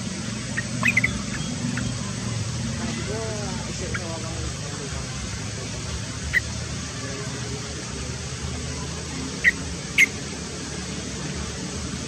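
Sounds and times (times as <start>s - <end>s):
low rumble and hiss: 0.0s - 12.0s
sharp bird chirps: 0.5s - 2.0s, 9.4s - 10.2s.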